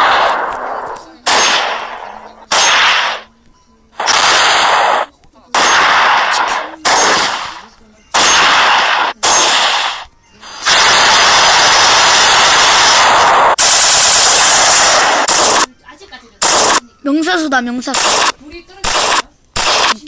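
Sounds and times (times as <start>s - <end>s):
loud gunshots: 0.0s - 3.3s, 4.0s - 15.7s, 16.4s - 16.8s, 17.9s - 20.0s
rapid automatic gunfire: 0.0s - 3.3s, 4.0s - 7.6s, 8.2s - 15.7s, 16.4s - 16.8s, 17.9s - 20.0s.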